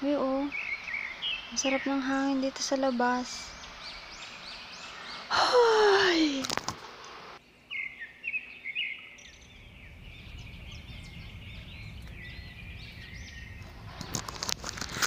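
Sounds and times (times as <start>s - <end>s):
wind rumbling on microphone: 0.0s - 5.4s, 9.2s - 15.0s
small birds chirping: 0.0s - 14.9s.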